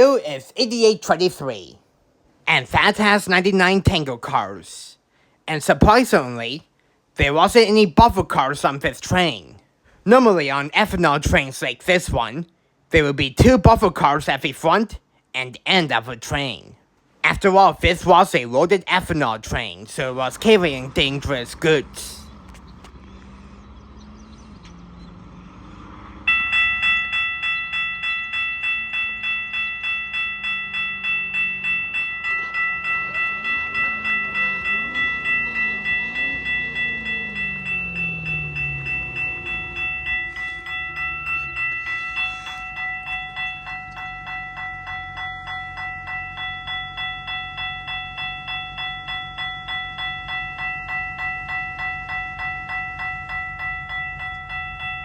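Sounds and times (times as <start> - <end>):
level crossing warning bell: 2.5 - 4.8, 5.6 - 55.0
train sliding tones: 20.2 - 46.3.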